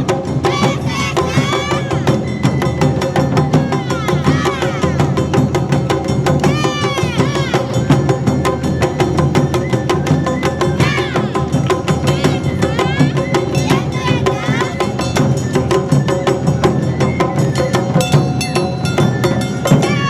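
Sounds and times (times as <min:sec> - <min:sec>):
shouted calls: 0:00.0 - 0:09.2, 0:09.8 - 0:15.5
festival band drums: 0:00.0 - 0:20.0.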